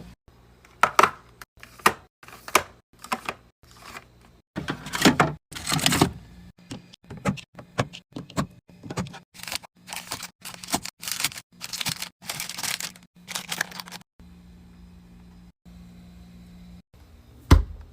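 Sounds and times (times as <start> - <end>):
plastic wrappers crinkling: 9.4 - 14.0.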